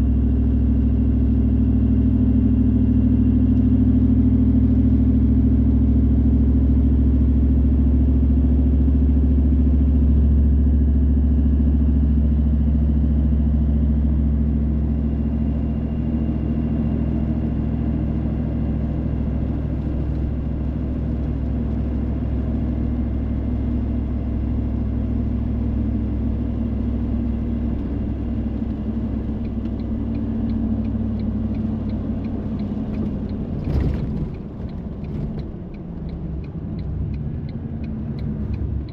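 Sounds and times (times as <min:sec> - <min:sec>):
car driving on wet road: 0:14.8 - 0:38.9.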